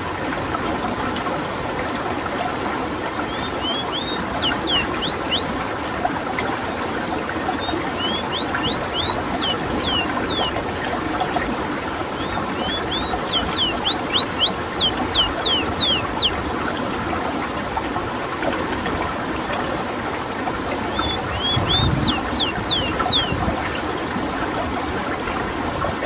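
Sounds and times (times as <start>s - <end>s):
bird singing whistled notes: 3.3s - 5.5s, 7.6s - 10.6s, 12.2s - 16.4s, 20.9s - 23.4s.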